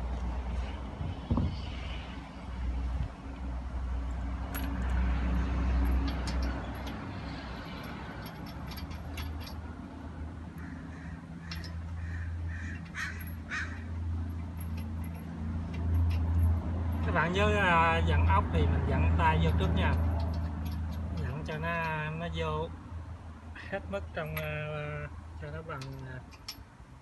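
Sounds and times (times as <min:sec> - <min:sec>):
metallic clicks and knocks: 0:05.8 - 0:09.7, 0:11.4 - 0:12.0, 0:12.8 - 0:17.1, 0:19.4 - 0:22.0, 0:25.8 - 0:26.7.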